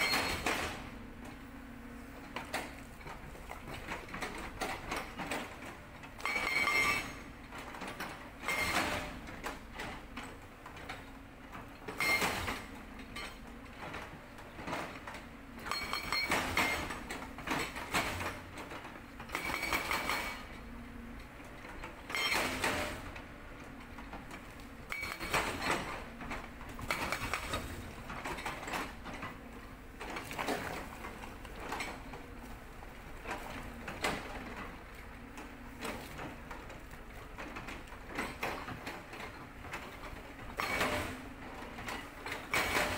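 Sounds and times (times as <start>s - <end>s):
hydraulic breaker hammering rock: 0.0s - 0.9s, 6.2s - 7.3s, 8.4s - 9.6s, 11.9s - 13.4s, 15.6s - 18.6s, 19.2s - 20.6s, 22.0s - 23.1s, 24.8s - 29.3s, 40.5s - 41.3s, 42.3s - 42.9s
excavator engine running: 0.0s - 42.9s.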